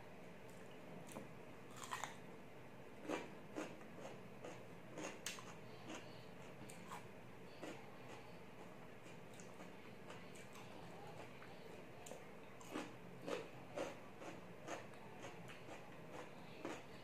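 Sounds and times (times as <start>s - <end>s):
cucumber crunching: 0.5s - 2.2s.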